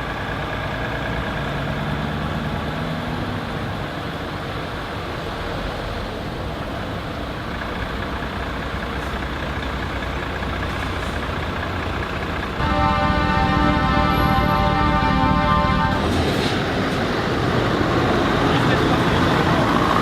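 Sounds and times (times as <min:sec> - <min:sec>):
heavy trucks rumbling past: 0:00.0 - 0:20.0
truck horn blasting: 0:12.6 - 0:16.7.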